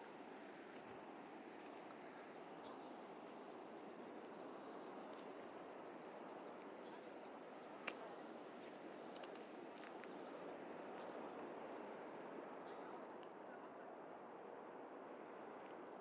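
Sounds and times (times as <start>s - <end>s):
small birds chirping: 1.6s - 5.4s, 6.6s - 12.0s.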